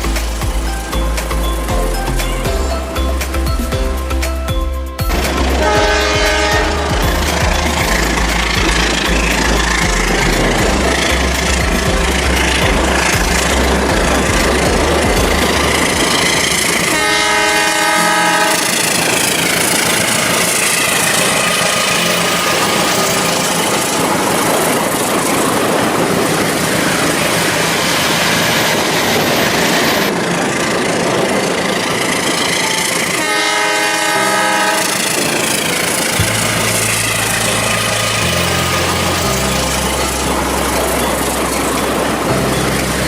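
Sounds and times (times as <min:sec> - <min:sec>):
train passing with rumble: 0:00.0 - 0:43.0
train horn: 0:05.2 - 0:11.6, 0:15.9 - 0:24.7, 0:32.0 - 0:42.4.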